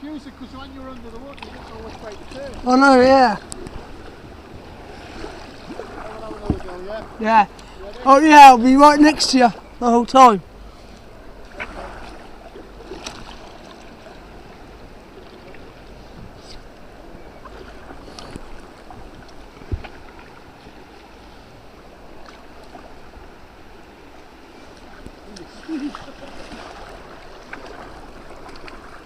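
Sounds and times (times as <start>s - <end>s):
river water splashing: 0.0s - 29.0s
knocks on kayak: 6.4s - 7.1s.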